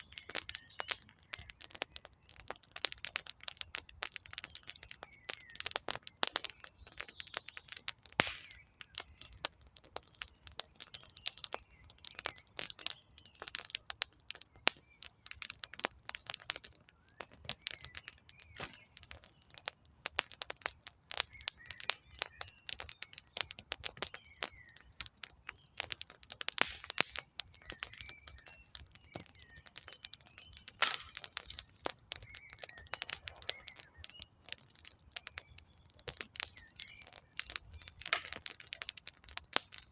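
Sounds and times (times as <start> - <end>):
campfire crackling and popping: 0.0 - 39.9
faint bird chirps: 21.2 - 25.8, 26.8 - 38.1.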